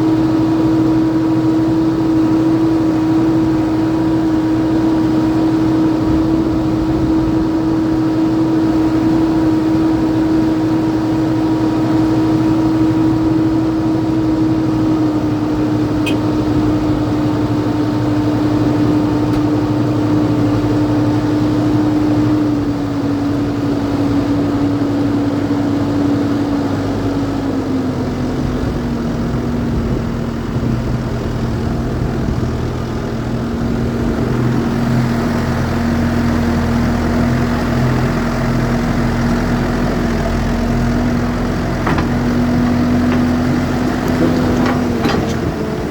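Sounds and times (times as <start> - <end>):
engine humming: 0.0 - 45.9.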